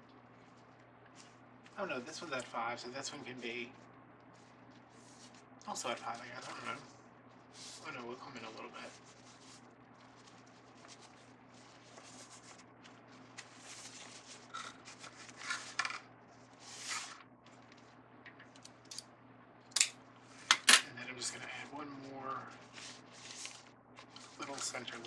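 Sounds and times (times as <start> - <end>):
sharp clicks: 20.5 - 20.8.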